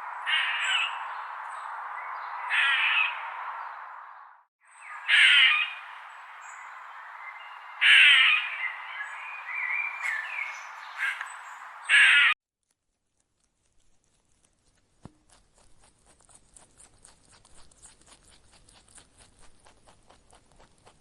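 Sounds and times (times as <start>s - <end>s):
bird cawing harshly: 0.1s - 1.4s, 2.0s - 3.7s, 4.8s - 12.4s.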